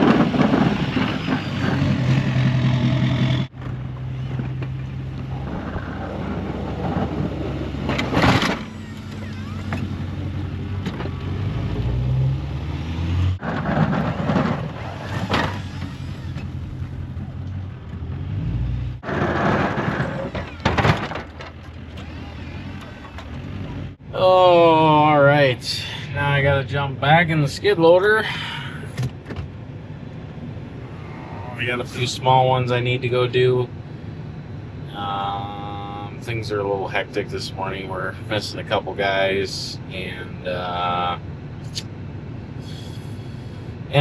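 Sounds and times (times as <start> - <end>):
diesel truck engine running: 0.0 - 26.7.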